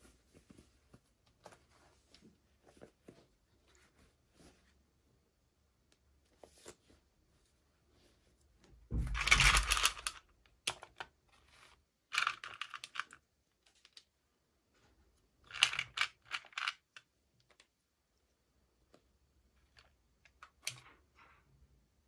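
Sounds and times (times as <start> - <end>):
dull thump: 8.9 - 9.4.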